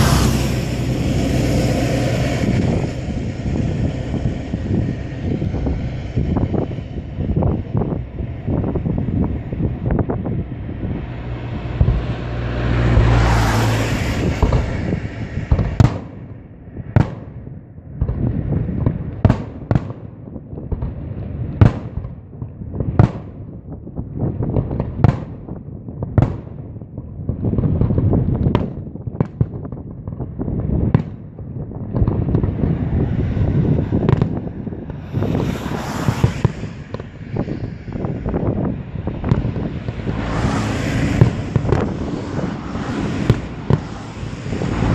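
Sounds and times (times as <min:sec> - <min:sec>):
firework hiss: 0:00.0 - 0:09.0, 0:32.3 - 0:44.9
fireworks rumble: 0:00.0 - 0:44.9
sharp firework bangs: 0:10.9 - 0:44.9.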